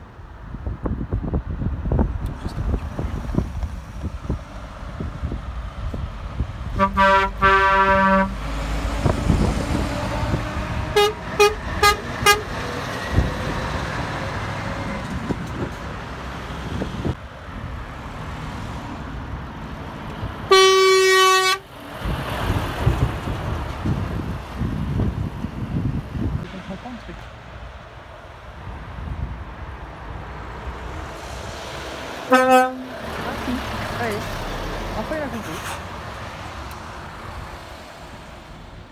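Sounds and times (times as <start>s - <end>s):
trucks passing: 0.0s - 38.9s
truck horns blasting: 6.7s - 8.7s, 10.1s - 12.7s, 20.4s - 21.7s, 32.3s - 33.1s.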